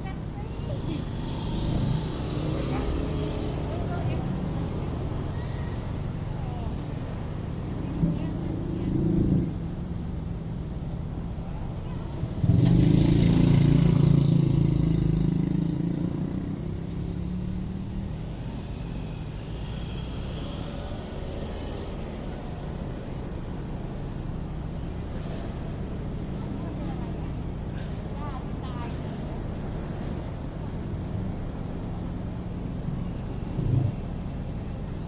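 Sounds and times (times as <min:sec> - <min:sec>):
low traffic hum: 0:00.0 - 0:35.0
vehicle engine passing by: 0:00.5 - 0:05.2, 0:12.3 - 0:22.7.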